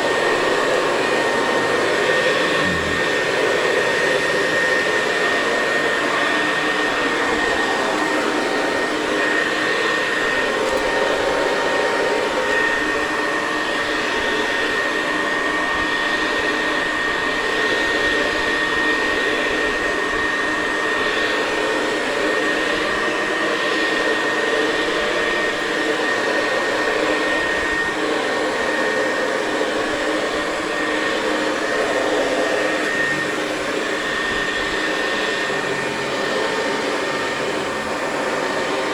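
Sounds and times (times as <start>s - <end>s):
vacuum cleaner running on carpet: 0.0s - 38.9s.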